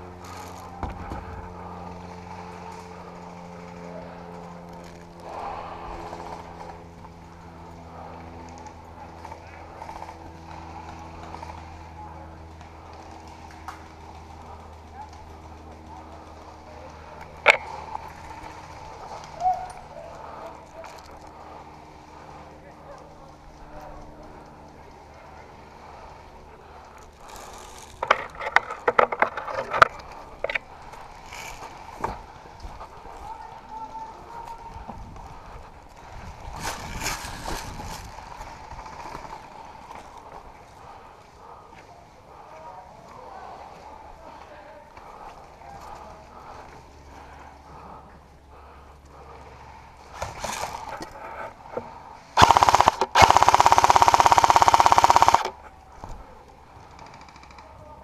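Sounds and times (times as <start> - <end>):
airsoft gun firing bursts: 52.4 - 55.6.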